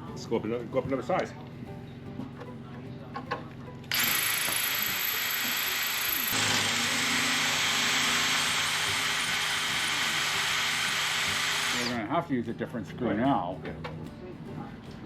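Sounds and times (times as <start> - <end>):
power drill running: 3.9 - 12.0.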